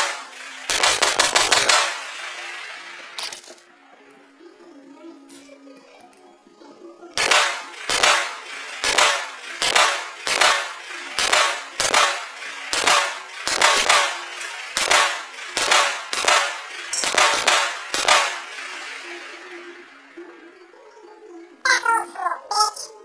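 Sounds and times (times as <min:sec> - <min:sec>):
sharp ringing bangs: 0:00.0 - 0:02.5, 0:07.2 - 0:19.8.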